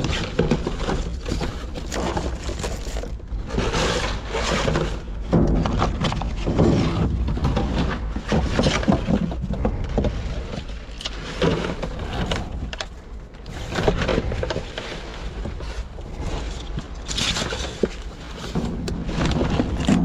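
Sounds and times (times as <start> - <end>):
rustling and knocking of trash bags: 0.0 - 9.8, 17.4 - 20.0.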